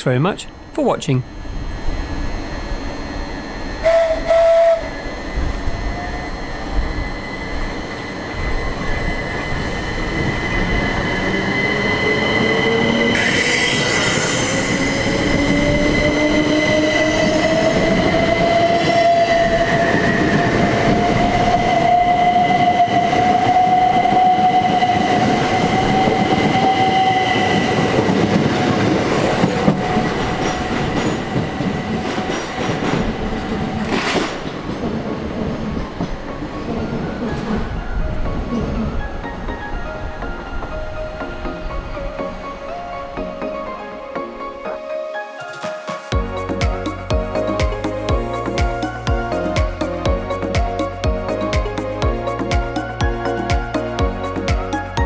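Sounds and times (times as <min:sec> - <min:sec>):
electric train motor whine rising: 0:00.4 - 0:35.1.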